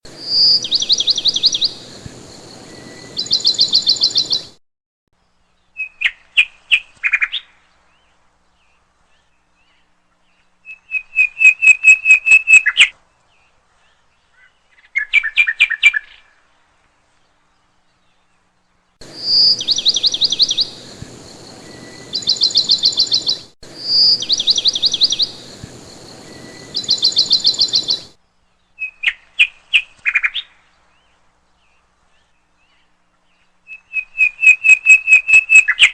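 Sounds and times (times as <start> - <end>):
small birds trilling and chirping: 0.1 - 4.6, 12.6 - 35.9.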